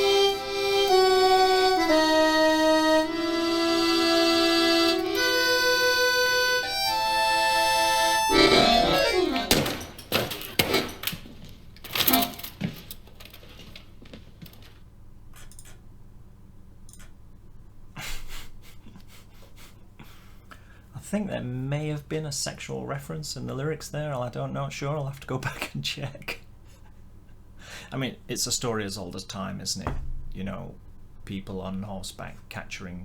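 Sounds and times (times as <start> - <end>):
reedy accordion-like melody: 0.0 - 10.0, 12.0 - 12.5
faint clicks: 15.4 - 15.8, 16.8 - 17.2.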